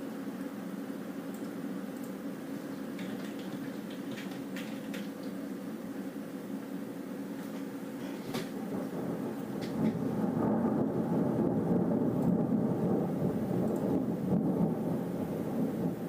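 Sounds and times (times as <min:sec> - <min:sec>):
rolling thunder: 0:08.4 - 0:16.0.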